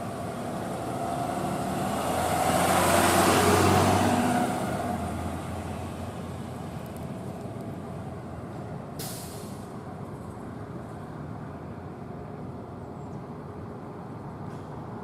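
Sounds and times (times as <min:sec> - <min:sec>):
heavy vehicle engine rumble: 0:00.0 - 0:15.0
air hiss: 0:09.0 - 0:09.7.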